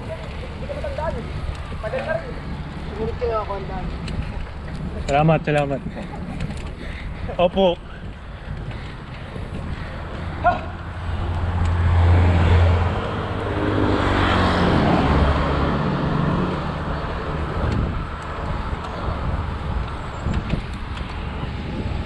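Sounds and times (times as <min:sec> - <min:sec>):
road and wind noise: 0:00.0 - 0:22.0
vehicle passing by: 0:09.4 - 0:22.0.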